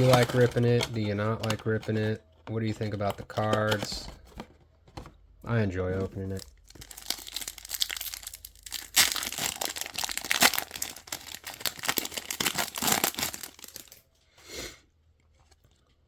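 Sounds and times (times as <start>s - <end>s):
foil wrapper crinkling and tearing: 0.0s - 1.1s, 6.2s - 14.0s.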